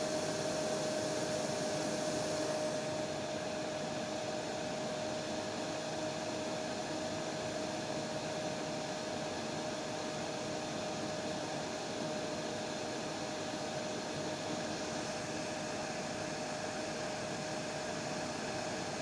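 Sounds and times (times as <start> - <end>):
hair dryer running: 0.0 - 5.7.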